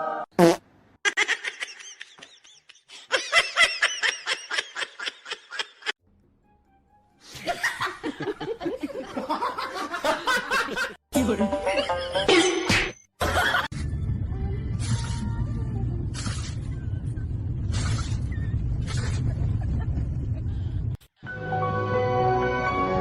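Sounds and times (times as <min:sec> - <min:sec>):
laughter in rapid bursts: 0:01.1 - 0:06.0, 0:07.3 - 0:11.0, 0:13.2 - 0:13.7, 0:19.0 - 0:20.7.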